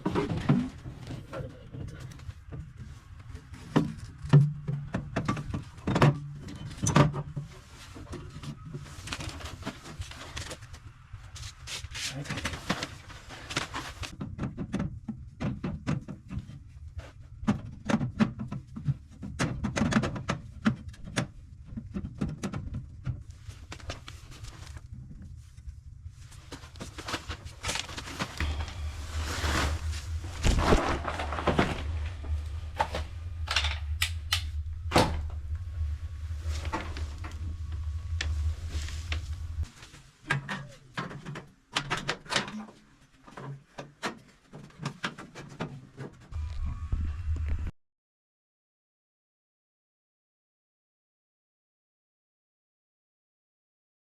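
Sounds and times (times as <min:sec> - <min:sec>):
low steady hum: 0:00.0 - 0:41.7, 0:46.4 - 0:47.7.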